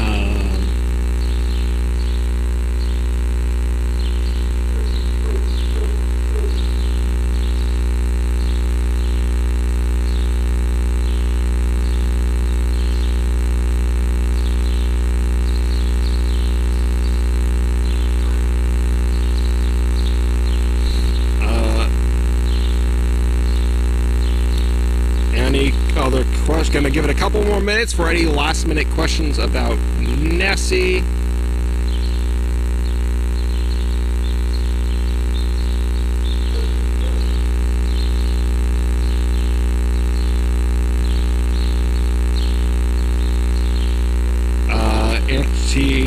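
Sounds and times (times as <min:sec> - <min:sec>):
low electrical hum: 0:00.0 - 0:46.0
faint high chirps: 0:33.4 - 0:40.4.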